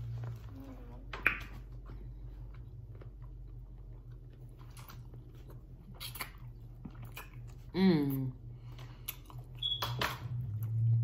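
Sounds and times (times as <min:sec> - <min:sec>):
people chewing: 0:00.0 - 0:09.7
low steady hum: 0:00.0 - 0:11.0
wet mouth clicks and smacks: 0:05.9 - 0:07.6.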